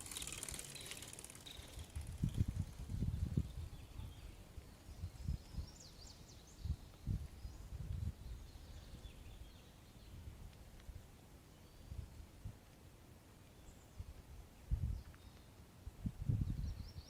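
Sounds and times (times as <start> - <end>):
birds chirping: 0.0 - 6.7.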